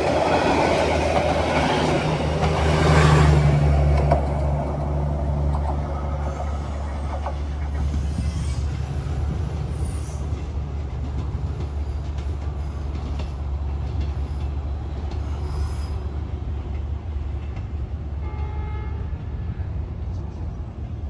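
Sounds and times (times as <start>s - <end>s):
train rumbling: 0.0s - 21.0s
high wheel squeals: 7.7s - 10.3s, 15.2s - 16.1s.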